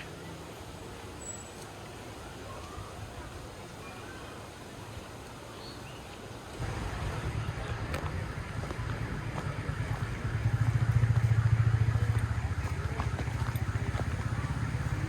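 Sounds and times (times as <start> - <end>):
vehicle engine rumbling: 6.6 - 15.0.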